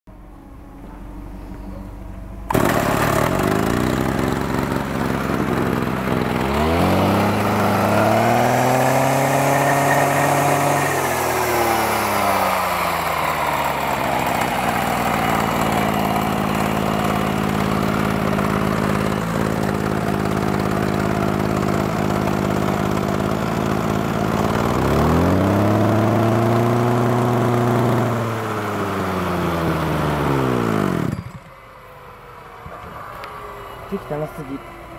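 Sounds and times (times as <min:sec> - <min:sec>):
brush cutter engine revving: 0:02.4 - 0:31.4.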